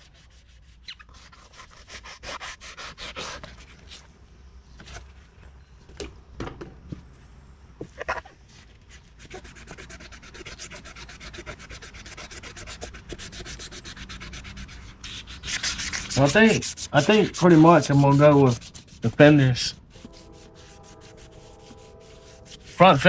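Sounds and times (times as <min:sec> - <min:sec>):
wet sanding plastic by hand: 0:00.0 - 0:04.0, 0:09.2 - 0:23.0.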